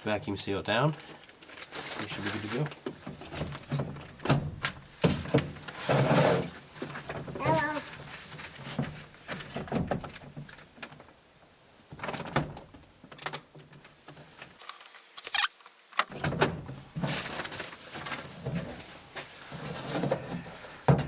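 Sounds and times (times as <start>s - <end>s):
plastic bag crinkling: 1.2s - 2.8s.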